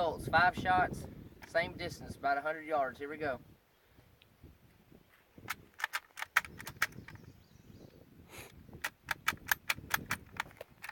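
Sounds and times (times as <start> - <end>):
sharp clicks and knocks: 5.5 - 7.3, 8.8 - 10.9.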